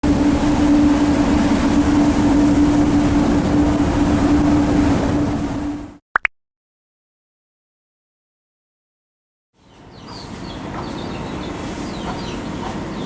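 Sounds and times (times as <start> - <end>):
engine running: 0.0 - 6.0
loud wash of noise: 0.0 - 6.0.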